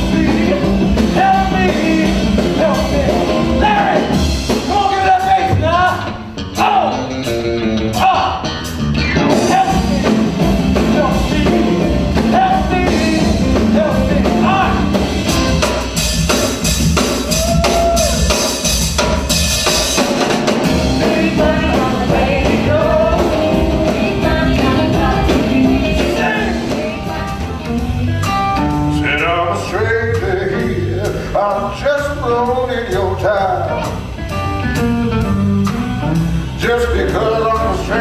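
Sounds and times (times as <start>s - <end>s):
person singing: 0.0s - 7.1s, 9.3s - 15.6s, 20.6s - 28.2s, 28.9s - 34.0s, 36.6s - 38.0s
blues-rock band playing: 0.0s - 38.0s.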